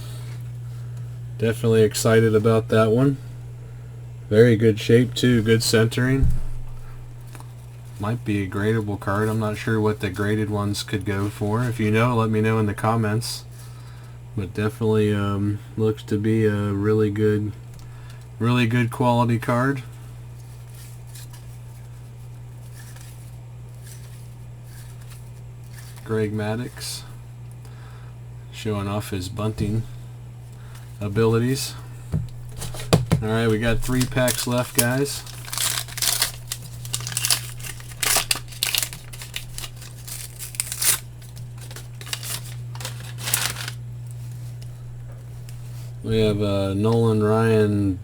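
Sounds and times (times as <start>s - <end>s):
steady low hum: 0.0s - 48.0s
cards rustling and sliding: 20.4s - 26.1s, 32.5s - 46.0s
plastic wrapper crinkling and tearing: 33.3s - 44.7s.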